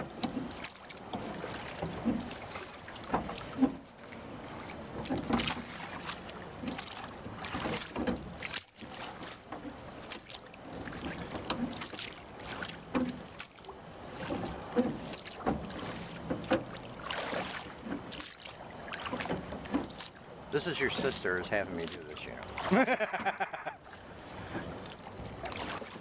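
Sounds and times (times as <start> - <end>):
hollow knocks of boat: 0.0 - 20.2
water splashing: 0.0 - 26.0.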